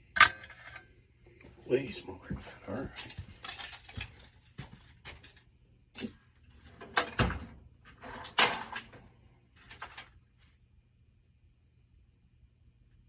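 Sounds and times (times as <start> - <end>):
metal tools clattering: 3.0 - 4.3, 8.1 - 8.9.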